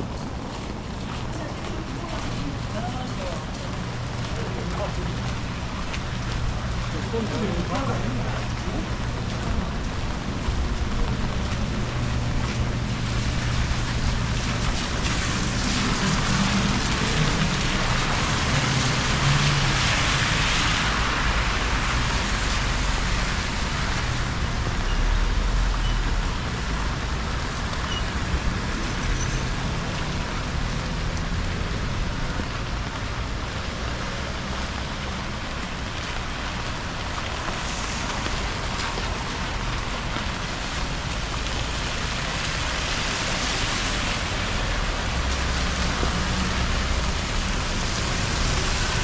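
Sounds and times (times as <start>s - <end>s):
tyre hiss on wet road: 11.8s - 49.0s.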